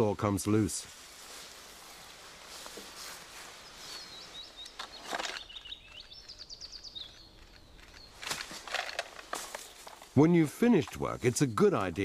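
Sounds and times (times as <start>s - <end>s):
songbird singing with trill: 3.6s - 8.3s.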